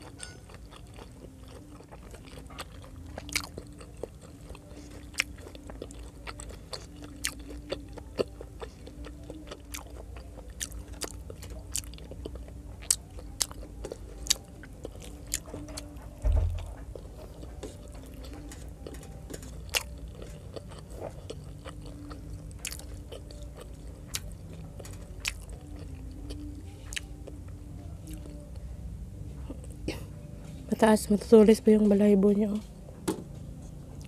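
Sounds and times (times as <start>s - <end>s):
chewing and biting food: 0.0s - 27.4s, 28.0s - 28.6s
dull thump: 16.2s - 16.7s.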